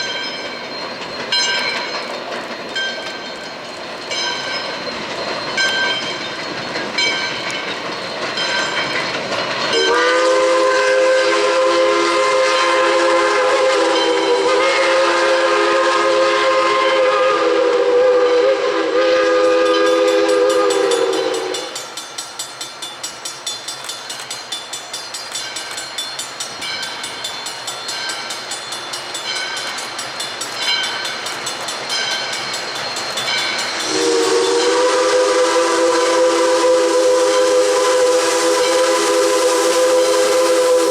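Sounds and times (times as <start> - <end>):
train running rhythmic beat: 0.0 - 40.9
steam locomotive chime whistle: 2.8 - 9.0, 9.7 - 40.9.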